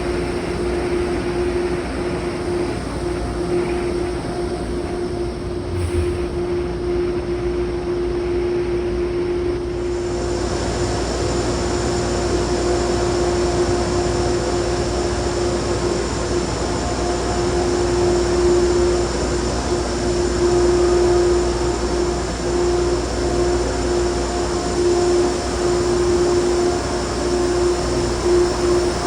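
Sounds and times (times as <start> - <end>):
train running: 0.0 - 8.4
humming tone: 0.0 - 9.9.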